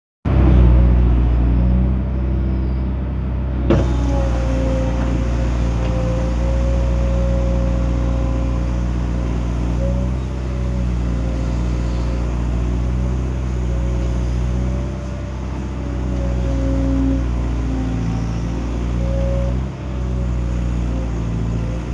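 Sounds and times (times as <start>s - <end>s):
excavator diesel engine running: 0.3s - 21.9s.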